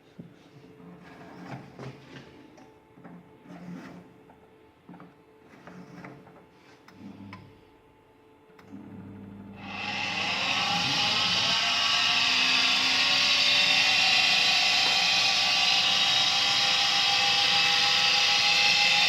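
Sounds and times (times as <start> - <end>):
boiler fan whining: 9.4 - 19.0.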